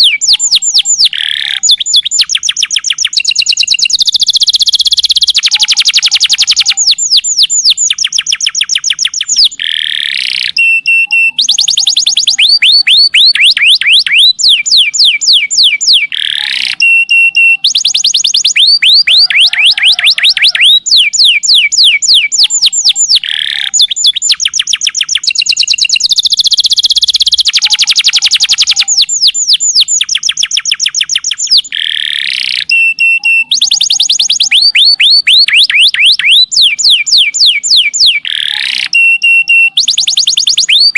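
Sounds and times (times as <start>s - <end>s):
canary singing fast trills: 0.0s - 40.9s.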